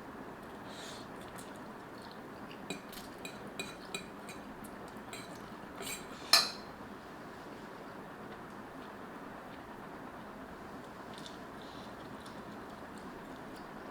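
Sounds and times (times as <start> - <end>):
utensils clinking against bowl: 2.7 - 4.5, 5.1 - 6.7.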